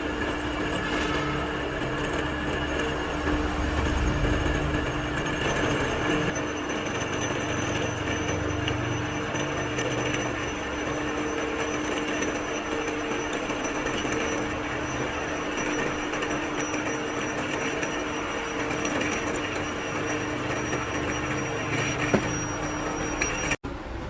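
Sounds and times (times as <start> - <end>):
workshop machine humming: 0.0 - 24.0
heavy low rumble: 2.3 - 6.3.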